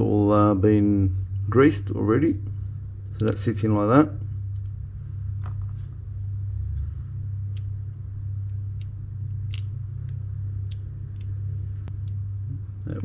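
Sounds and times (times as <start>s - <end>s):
steady low hum: 0.0s - 13.0s
small metal parts clicking: 8.8s - 11.3s.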